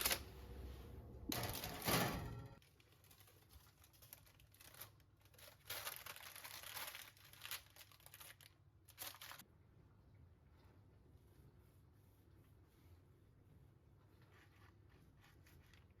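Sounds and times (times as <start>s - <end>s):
faint crinkling and rustling: 2.6s - 9.4s, 13.9s - 16.0s.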